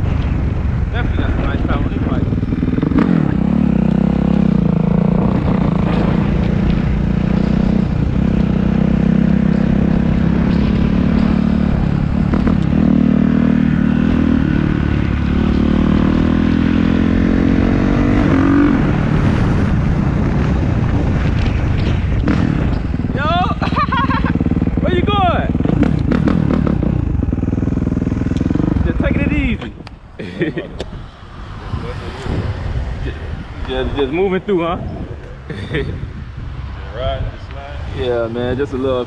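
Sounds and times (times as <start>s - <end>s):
dirt bike engine revving: 1.4s - 21.1s, 21.9s - 29.6s.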